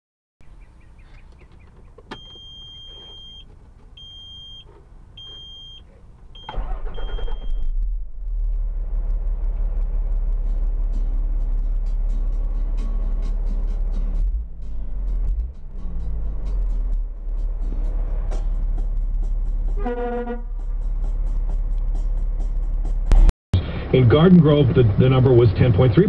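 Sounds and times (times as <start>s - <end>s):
truck engine idling: 0.4s - 25.2s
truck engine cranking and starting: 1.5s - 19.8s.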